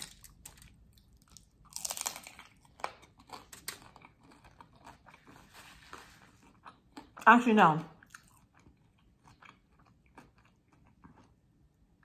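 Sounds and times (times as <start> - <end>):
crunchy chewing of taco: 0.0 - 7.2, 7.9 - 12.0.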